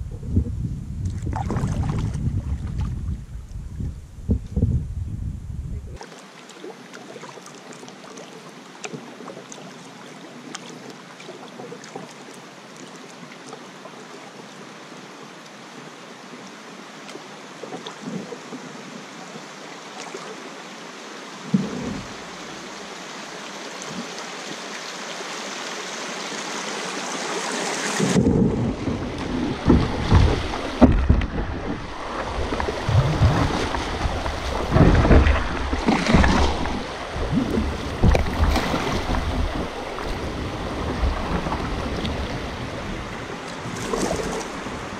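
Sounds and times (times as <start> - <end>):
water splashing: 0.0 - 3.2, 21.4 - 44.9
wind buffeting microphone: 0.0 - 6.0, 28.0 - 44.9
river water rushing: 18.8 - 44.9.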